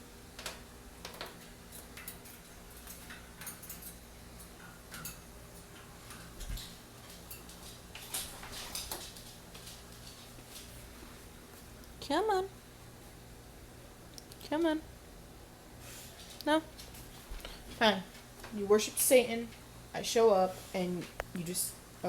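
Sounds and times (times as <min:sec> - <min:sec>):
bird clicking and tapping in cage: 0:00.4 - 0:04.0.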